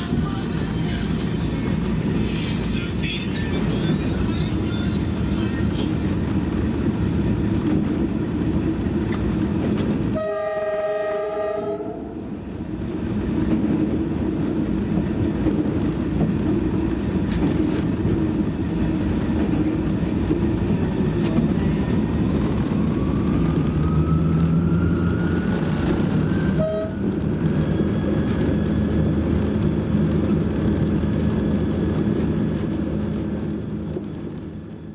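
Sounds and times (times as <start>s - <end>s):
train rumbling: 0.0s - 34.9s
train horn: 10.1s - 12.3s, 26.5s - 27.1s.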